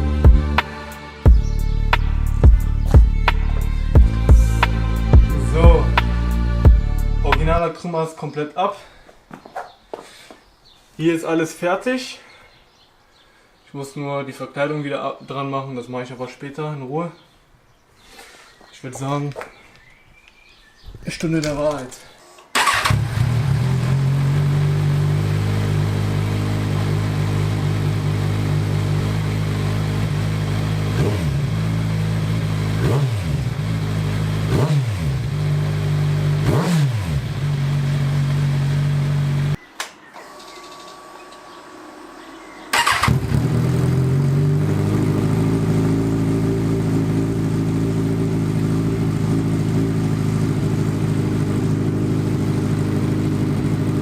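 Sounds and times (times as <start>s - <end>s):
motorcycle engine idling and revving: 0.0s - 7.6s, 22.6s - 39.6s, 42.7s - 54.0s.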